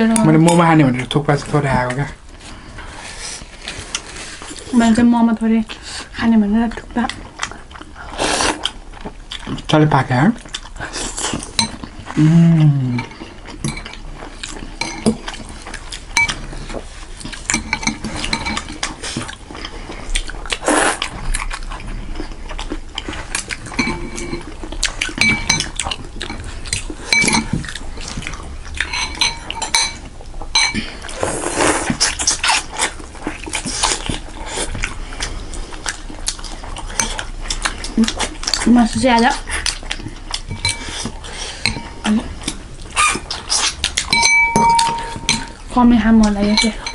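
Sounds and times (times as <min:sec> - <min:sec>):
cutlery clinking on bowls: 0:11.3 - 0:11.9, 0:12.9 - 0:14.0, 0:14.8 - 0:15.4, 0:16.1 - 0:19.3, 0:23.7 - 0:28.2, 0:28.8 - 0:31.0, 0:40.3 - 0:46.9.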